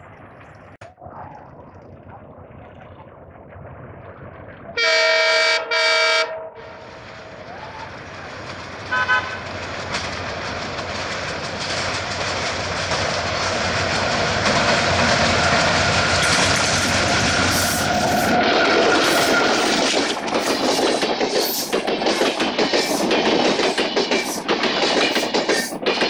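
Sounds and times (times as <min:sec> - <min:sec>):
locomotive horn blasts: 0:04.8 - 0:06.9, 0:08.9 - 0:09.4
short higher horn toot: 0:04.8 - 0:06.9
train engine and wheels on rails: 0:04.8 - 0:26.0.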